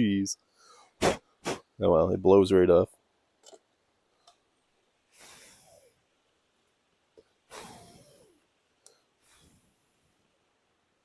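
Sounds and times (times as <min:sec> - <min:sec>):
person blowing onto coals: 0:01.0 - 0:01.7
faint clicks: 0:08.8 - 0:09.0.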